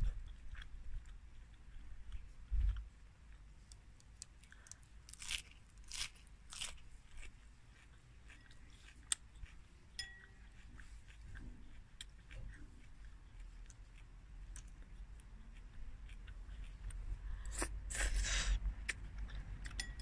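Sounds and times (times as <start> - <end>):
chewing noodles: 0.1 - 20.0
fork clinking on ceramic bowl: 10.0 - 10.6, 19.7 - 20.0.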